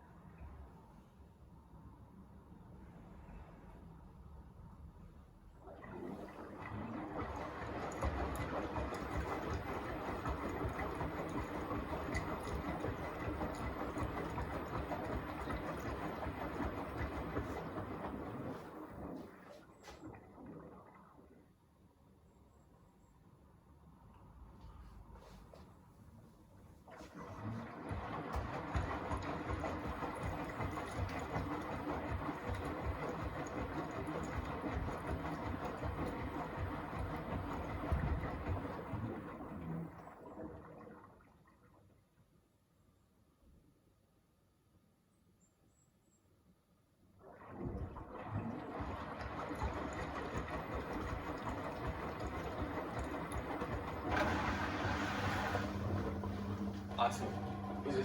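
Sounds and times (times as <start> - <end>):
wet laundry tumbling: 5.6 - 21.4, 26.8 - 41.2, 47.2 - 58.0
washing machine drum turning: 6.6 - 18.6, 27.2 - 39.0, 47.8 - 58.0
motor rumble: 27.0 - 40.4, 47.5 - 58.0.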